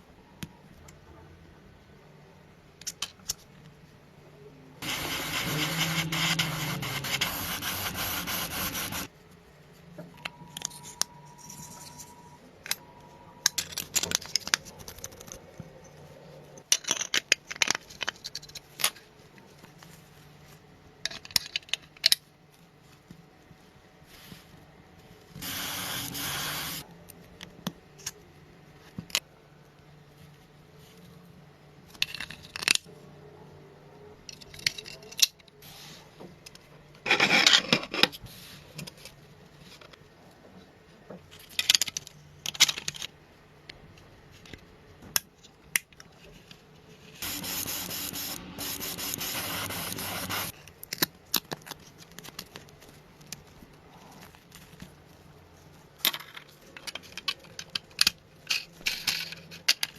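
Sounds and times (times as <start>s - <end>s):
scraping and rubbing parts: 4.8s - 9.2s, 10.4s - 12.8s, 25.4s - 26.9s, 37.0s - 40.0s, 46.1s - 59.9s
steady hiss: 25.4s - 26.8s, 47.2s - 50.5s.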